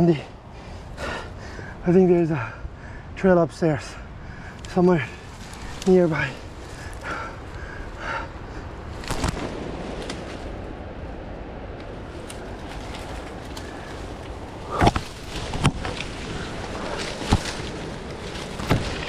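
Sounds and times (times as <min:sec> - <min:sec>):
rustling through undergrowth: 0:00.0 - 0:02.4, 0:03.6 - 0:19.0
sharp cracks and thuds: 0:04.2 - 0:10.6, 0:11.8 - 0:19.0.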